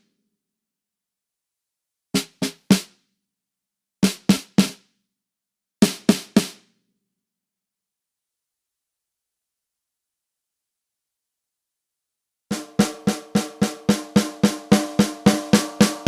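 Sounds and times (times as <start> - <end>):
quick drum sample hits: 12.5 - 16.0.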